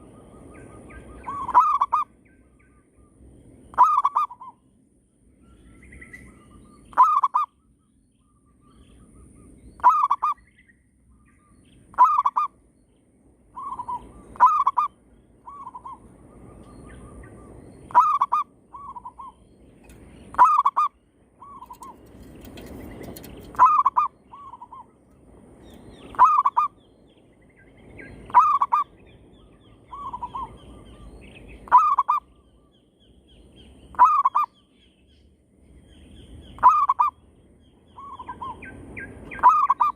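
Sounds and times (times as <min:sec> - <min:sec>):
doves cooing: 0:28.3 - 0:28.8, 0:36.6 - 0:37.1, 0:39.4 - 0:39.9.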